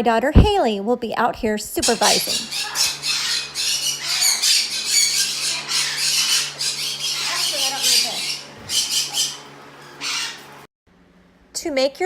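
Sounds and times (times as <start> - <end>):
parrots squawking: 1.8 - 10.7.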